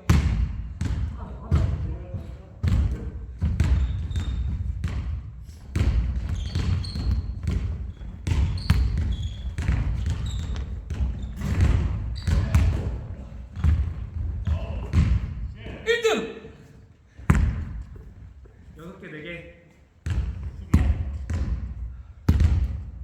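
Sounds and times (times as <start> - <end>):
basketballs bouncing on court: 0.0 - 16.0, 17.1 - 18.6, 20.0 - 23.0
shoe squeaks: 3.7 - 4.7, 6.2 - 12.7.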